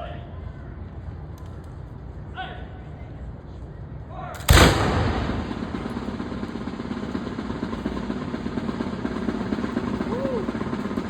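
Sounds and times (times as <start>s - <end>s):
engine running with low hum: 4.8s - 11.0s.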